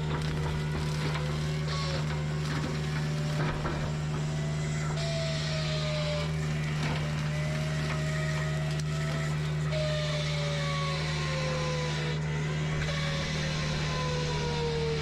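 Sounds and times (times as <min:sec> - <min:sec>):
brush cutter chewing through brush: 0:00.0 - 0:15.0
excavator engine running: 0:00.0 - 0:15.0
high sliding squeal: 0:07.2 - 0:15.0.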